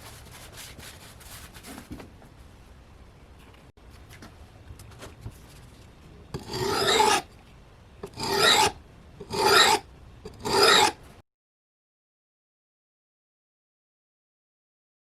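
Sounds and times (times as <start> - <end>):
file rasping across metal: 6.4 - 7.3, 8.0 - 11.0.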